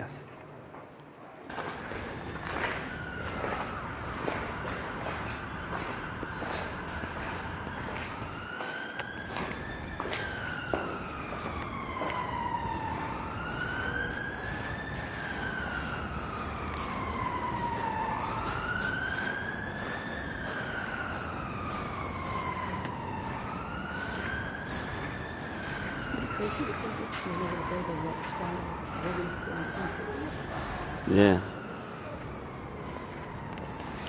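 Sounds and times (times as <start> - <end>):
street noise: 0.0 - 34.0
wind: 0.0 - 34.0
siren wailing: 1.5 - 34.0.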